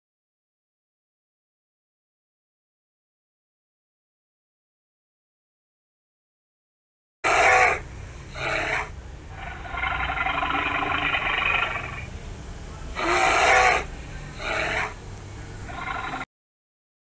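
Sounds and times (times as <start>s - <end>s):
polar bear calling: 7.3s - 12.1s, 13.0s - 15.0s, 15.6s - 16.3s.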